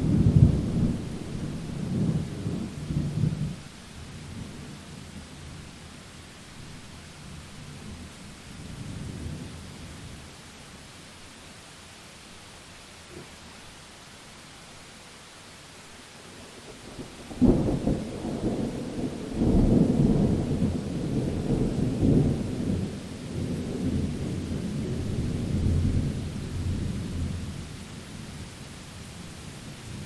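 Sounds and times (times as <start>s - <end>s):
rolling thunder rumble: 0.0s - 3.6s, 17.0s - 27.7s
rain hissing: 0.0s - 30.0s.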